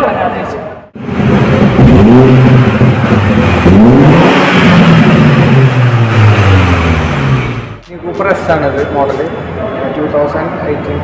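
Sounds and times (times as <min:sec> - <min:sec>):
car engine revving: 0:01.0 - 0:09.6.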